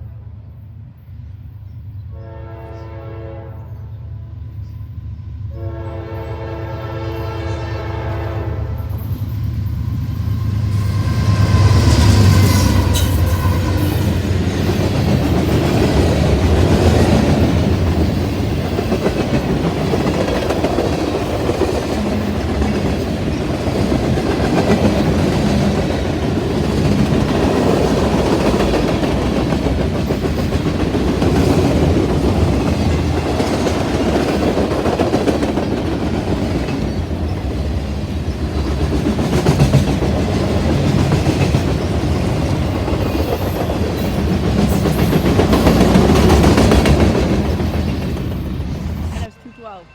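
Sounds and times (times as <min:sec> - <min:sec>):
train wheels rumbling on rails: 0:00.0 - 0:49.8
train horn: 0:02.1 - 0:04.0, 0:05.5 - 0:09.0, 0:11.3 - 0:14.1.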